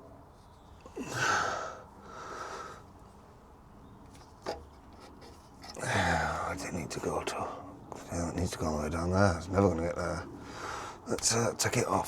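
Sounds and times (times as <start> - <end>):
person breathing in softly: 1.0 - 2.9, 10.4 - 11.0.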